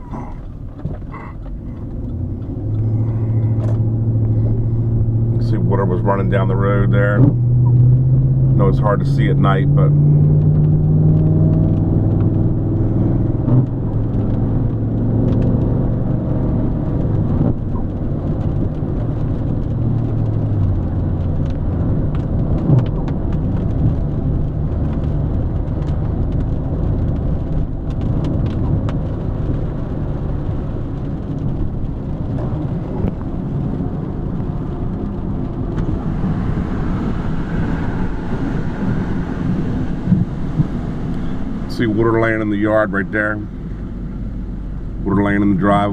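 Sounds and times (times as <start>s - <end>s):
car engine from inside: 0.0s - 45.9s
tyres hissing on wet road: 29.0s - 45.0s.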